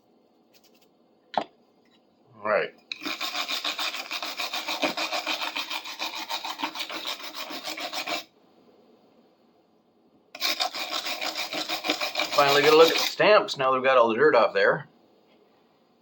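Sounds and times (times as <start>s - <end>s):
wire brush scrubbing metal: 2.9s - 8.3s, 10.4s - 13.2s.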